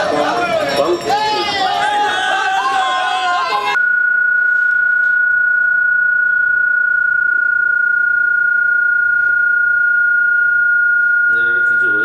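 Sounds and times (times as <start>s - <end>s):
steady pure tone: 3.7s - 12.0s.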